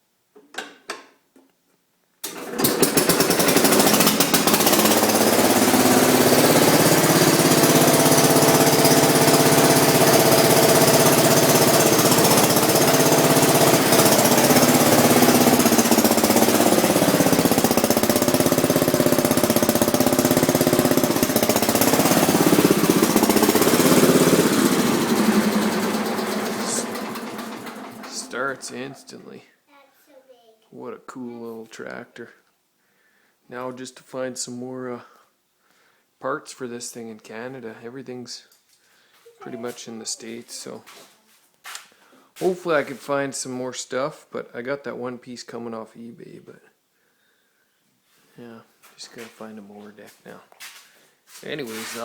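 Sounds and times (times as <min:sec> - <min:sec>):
tractor engine starting and running: 0:02.2 - 0:29.2.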